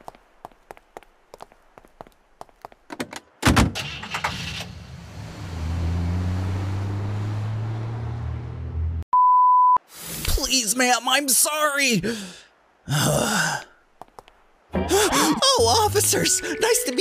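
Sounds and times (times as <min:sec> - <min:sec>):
soft footsteps: 0:00.0 - 0:03.0, 0:13.9 - 0:14.5
car engine starting and driving off: 0:03.8 - 0:09.0.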